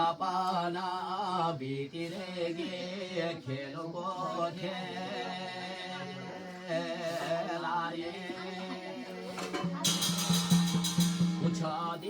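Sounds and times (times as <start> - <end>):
man singing devotional chant: 0.0 - 9.8, 11.3 - 12.0
drum strokes: 9.4 - 12.0.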